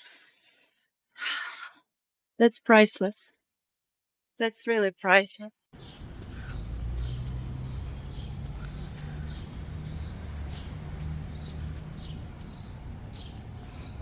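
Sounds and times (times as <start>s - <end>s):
bird chirping: 5.8s - 14.0s
low outdoor rumble: 5.8s - 14.0s.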